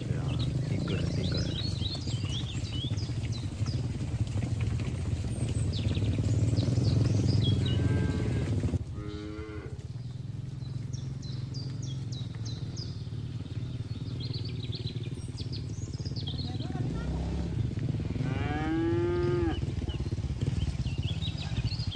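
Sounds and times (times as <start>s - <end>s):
small birds chirping: 0.0s - 21.9s
cow mooing: 7.4s - 9.8s, 16.8s - 19.6s
steady low rumble: 9.7s - 21.9s.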